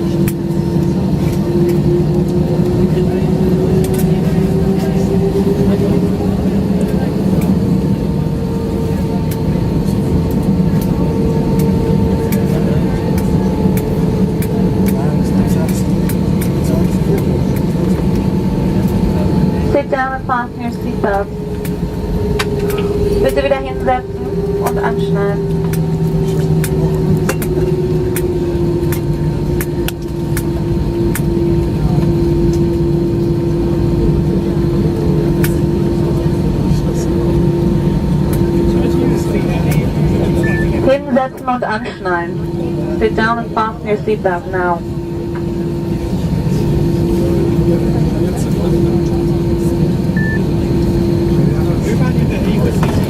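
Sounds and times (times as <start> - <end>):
jet engine rumble: 0.0 - 53.0
steady whine: 0.0 - 53.0.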